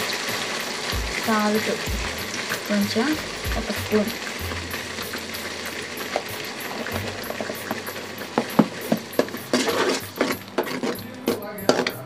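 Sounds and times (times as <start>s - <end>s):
paste sizzling and bubbling in oil: 0.0s - 12.0s
metal ladle clinking against pan: 5.0s - 12.0s.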